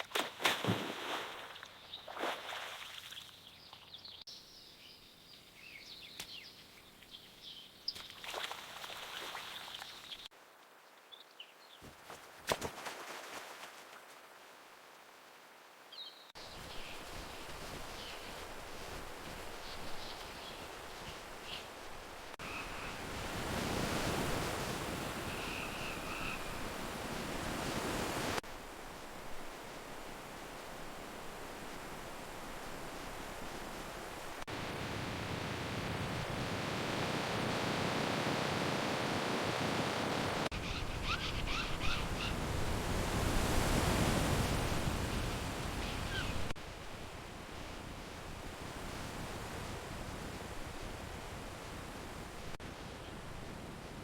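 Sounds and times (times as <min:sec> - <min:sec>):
birds chirping: 0:25.3 - 0:26.7, 0:40.5 - 0:42.5.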